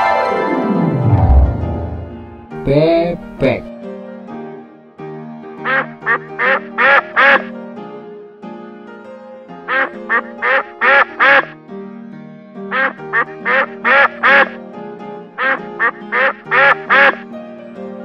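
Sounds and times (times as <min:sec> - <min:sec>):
soft keyboard music: 0:00.0 - 0:18.0
duck quacking: 0:05.6 - 0:07.5, 0:09.6 - 0:11.6, 0:12.7 - 0:14.6, 0:15.4 - 0:17.2.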